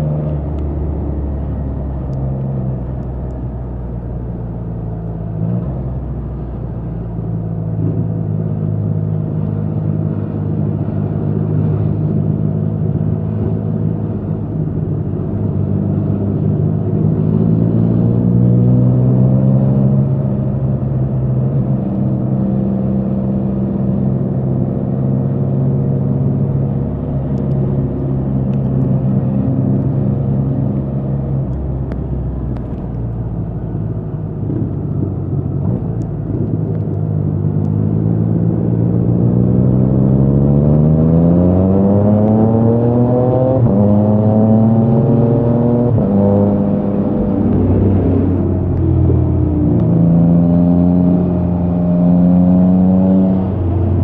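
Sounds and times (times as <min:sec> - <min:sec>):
motorcycle engine revving: 0:36.4 - 0:54.0.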